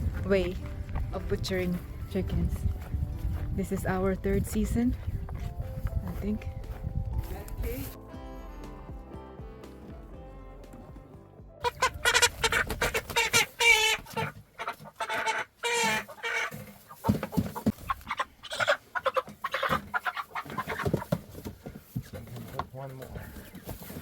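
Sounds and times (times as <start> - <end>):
chickens clucking and squawking: 11.6 - 22.0.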